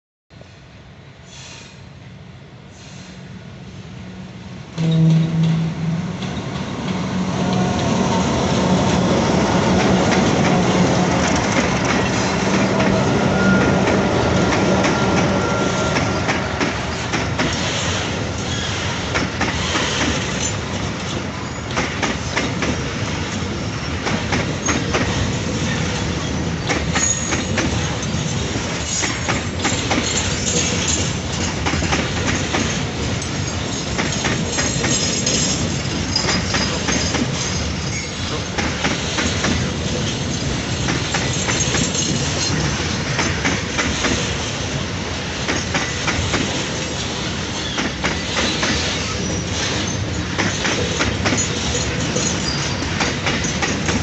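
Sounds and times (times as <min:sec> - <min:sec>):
locomotive engines humming: 0:03.4 - 0:19.5
wheel squeals: 0:12.6 - 0:16.3, 0:26.1 - 0:31.0, 0:47.6 - 0:53.9
wheels clattering over rail joints: 0:16.0 - 0:44.4, 0:45.4 - 0:54.0.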